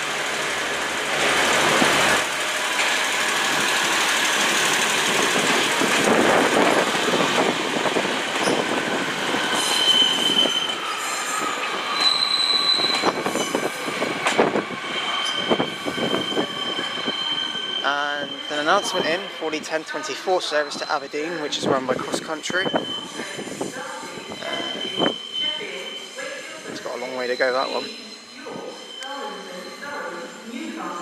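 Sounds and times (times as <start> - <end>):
train rumbling: 0.0 - 31.0
wheels squealing on track: 5.1 - 19.4, 22.5 - 29.9.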